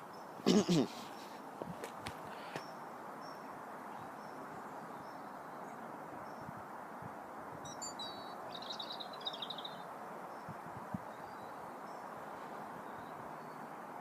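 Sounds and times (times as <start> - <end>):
steady outdoor hiss: 0.0 - 14.0
small bird chirping: 7.7 - 9.8.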